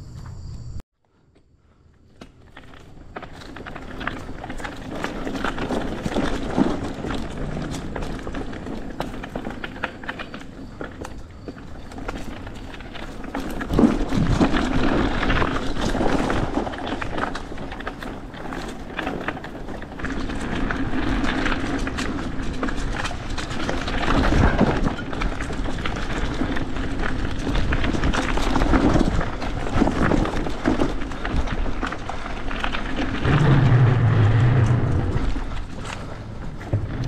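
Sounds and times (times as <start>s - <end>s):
tyre noise: 2.0s - 37.0s
bike rattling and knocking: 2.1s - 37.0s
low hum: 33.2s - 37.0s.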